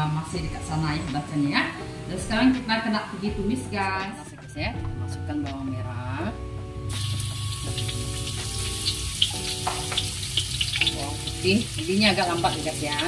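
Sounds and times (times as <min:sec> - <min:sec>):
background music: 0:00.0 - 0:13.0
shallots sizzling in hot oil: 0:06.9 - 0:13.0.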